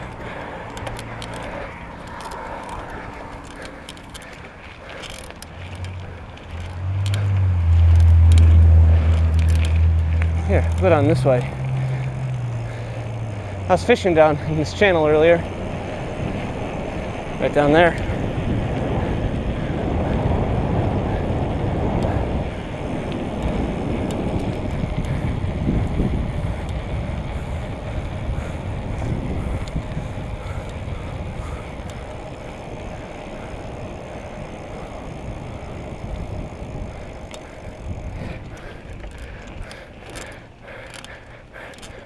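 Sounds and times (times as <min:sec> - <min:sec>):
faint clicks: 0:00.0 - 0:13.5, 0:36.9 - 0:42.0
wind rushing over microphone: 0:00.0 - 0:42.0.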